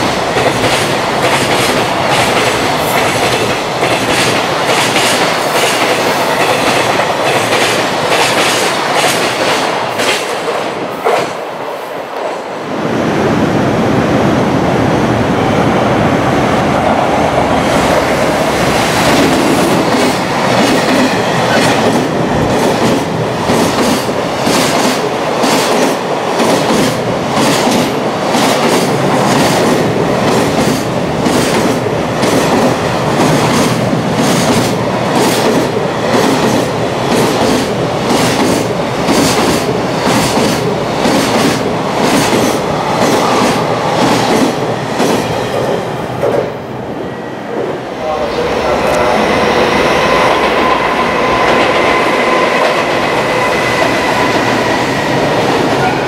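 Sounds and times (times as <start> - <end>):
freight train wheels clattering: 0.0 - 11.4, 17.3 - 46.5.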